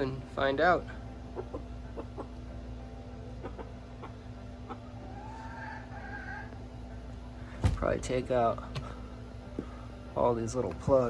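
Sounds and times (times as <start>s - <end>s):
steady low hum: 0.0s - 11.0s
chickens clucking: 1.0s - 7.9s.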